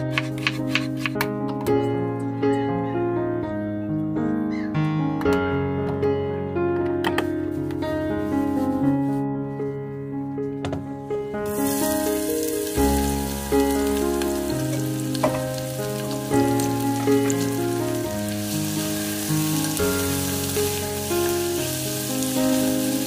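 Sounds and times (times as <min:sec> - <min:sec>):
food sizzling in oil: 0:11.5 - 0:23.0.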